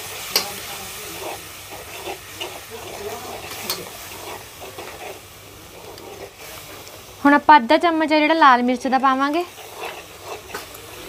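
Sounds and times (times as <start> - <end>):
paste sizzling in a pot: 0.0 - 11.0
spoon stirring: 0.3 - 6.6, 9.0 - 11.0.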